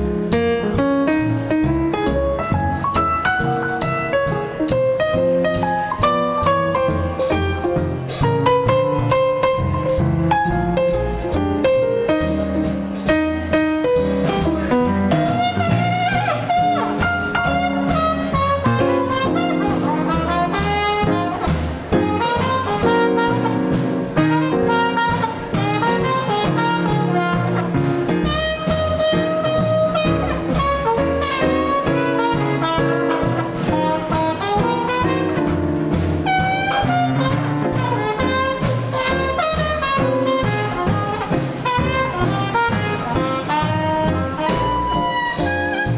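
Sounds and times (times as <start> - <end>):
double bass: 0.0 - 45.9
drums: 0.0 - 45.9
piano: 0.0 - 45.9
trumpet: 13.4 - 45.9
saxophone: 40.7 - 45.9.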